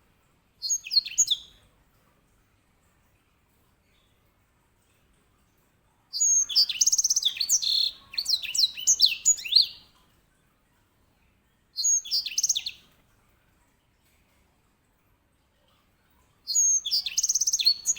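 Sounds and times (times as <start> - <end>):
finch singing trills: 0.6 - 1.6, 6.2 - 9.8, 11.8 - 12.8, 16.5 - 17.9.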